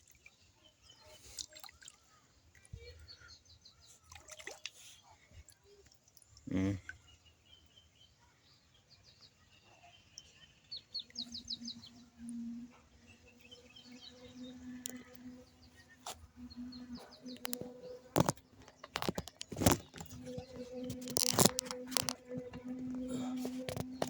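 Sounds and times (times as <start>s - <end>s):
small birds chirping: 0.0s - 24.0s
faint low hum: 9.5s - 24.0s.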